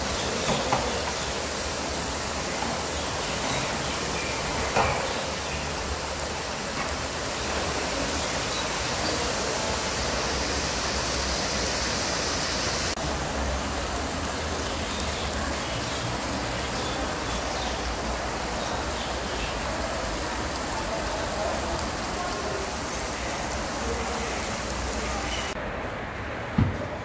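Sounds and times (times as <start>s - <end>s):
carrots sizzling in hot oil: 0.0s - 25.6s.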